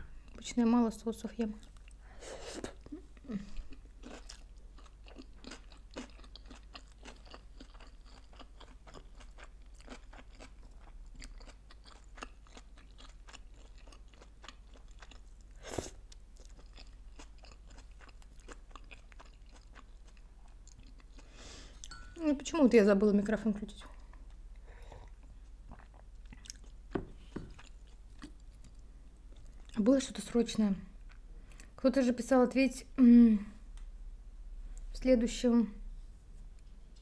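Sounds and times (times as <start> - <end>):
wet chewing clicks and crunches: 3.7 - 22.0, 27.5 - 29.8.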